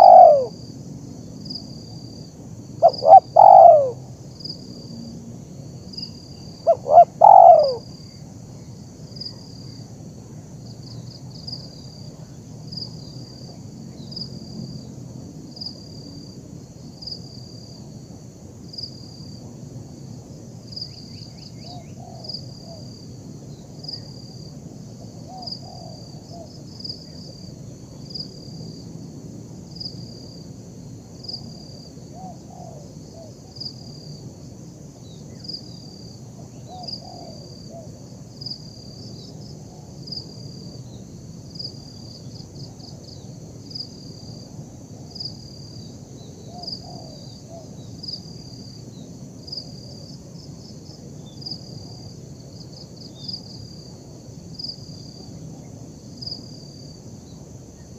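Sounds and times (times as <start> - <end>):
dove cooing: 0.0 - 0.6, 2.8 - 4.0, 6.6 - 7.9, 21.8 - 22.8, 25.2 - 26.5, 32.1 - 33.3, 36.5 - 37.9, 46.5 - 47.6
high insect drone: 0.0 - 57.9.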